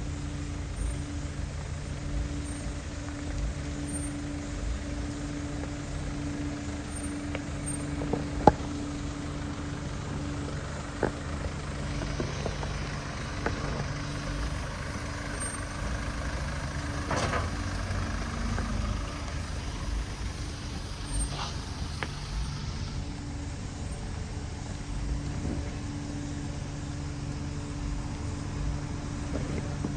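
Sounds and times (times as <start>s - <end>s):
vehicle engine running: 0.0s - 29.9s.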